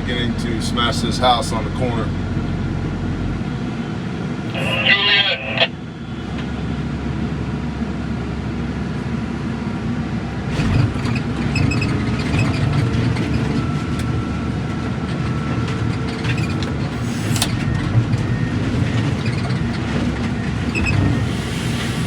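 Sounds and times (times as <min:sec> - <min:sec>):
heavy machine engine under load: 0:05.8 - 0:22.0.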